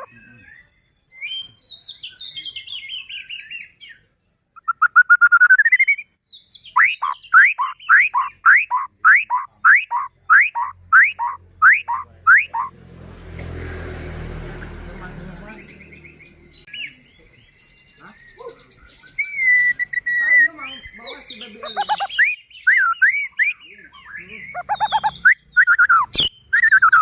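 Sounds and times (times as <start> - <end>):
songbird singing: 0.0 - 27.0.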